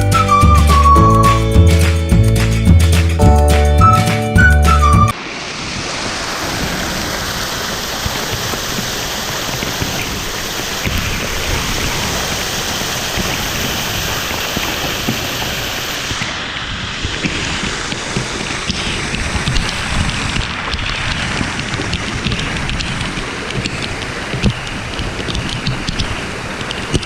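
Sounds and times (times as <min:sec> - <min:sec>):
waterfall roaring: 0:03.8 - 0:27.0
small clicks: 0:18.7 - 0:27.0.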